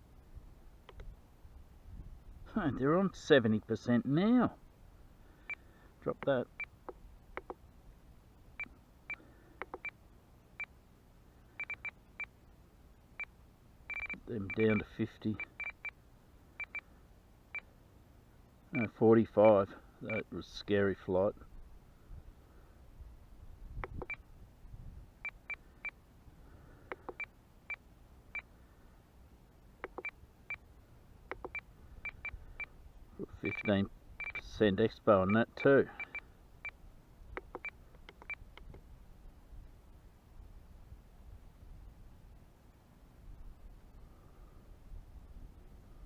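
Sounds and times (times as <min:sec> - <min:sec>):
short high beeps: 0:13.9 - 0:15.9, 0:33.4 - 0:34.5
button clicks: 0:23.8 - 0:24.2, 0:29.8 - 0:30.1, 0:31.3 - 0:31.6, 0:37.4 - 0:38.7.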